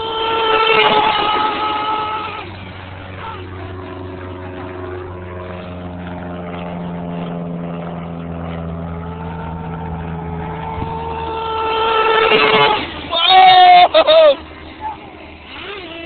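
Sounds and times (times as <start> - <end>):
small model truck engine running: 0.0 - 5.8, 8.9 - 16.0.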